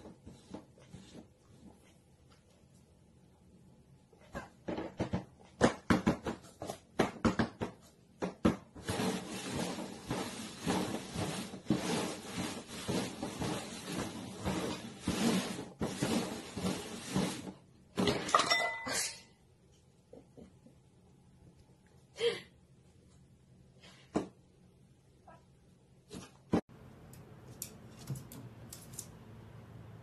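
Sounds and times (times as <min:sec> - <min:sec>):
cups scraping and shuffling: 0:08.8 - 0:19.2.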